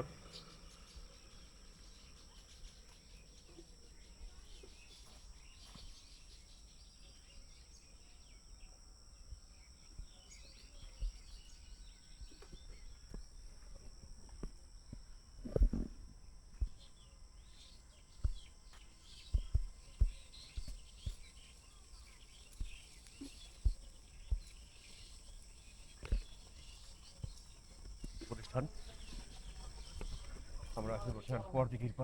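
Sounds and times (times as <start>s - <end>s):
high-pitched insect buzz: 0.0s - 31.3s
faint bird chirps: 0.0s - 32.0s.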